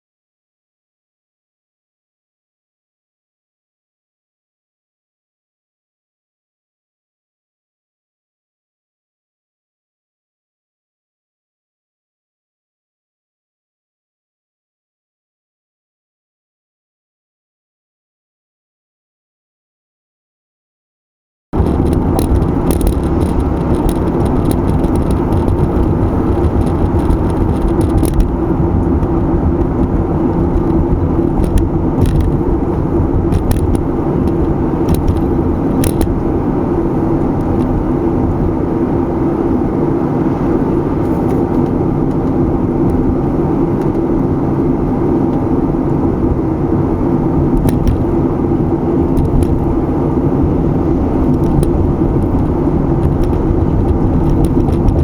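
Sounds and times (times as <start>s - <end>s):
car engine hum: 21.6s - 55.0s
road and tyre noise: 21.6s - 55.0s.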